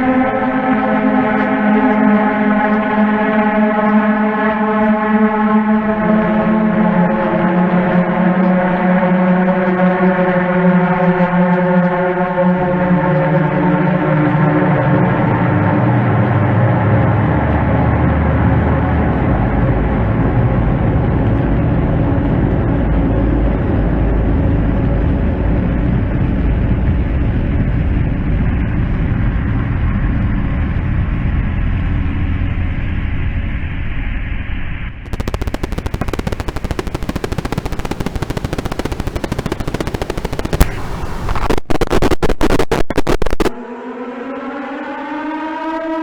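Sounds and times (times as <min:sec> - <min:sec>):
machine-gun fire: 0:35.1 - 0:43.5.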